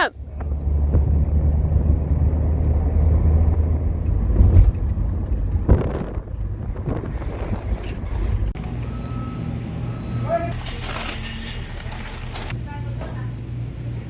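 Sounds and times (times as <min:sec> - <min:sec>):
car engine and road rumble: 0:00.0 - 0:12.8.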